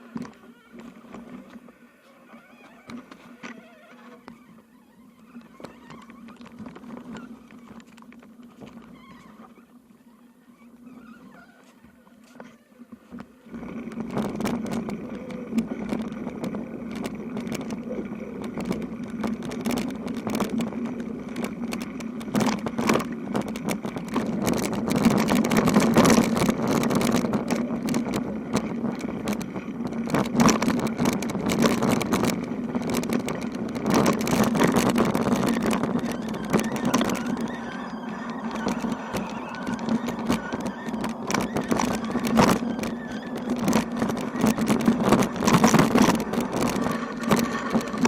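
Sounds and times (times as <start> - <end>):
bicycle low hum: 0.0 - 48.0
rattling and clicking: 12.3 - 48.0.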